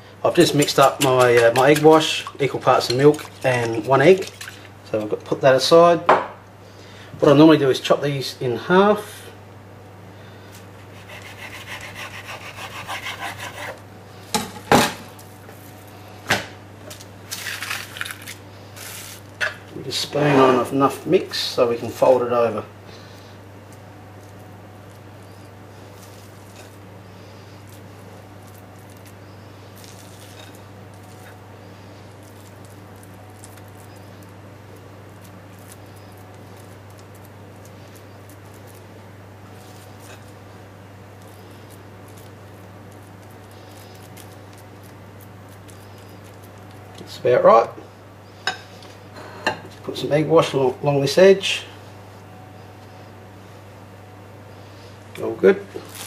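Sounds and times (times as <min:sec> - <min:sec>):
steady low hum: 0:00.0 - 0:56.0
spoon scraping sticky mix: 0:00.3 - 0:05.2, 0:24.2 - 0:47.3
knife sawing on chopping board: 0:10.9 - 0:13.8.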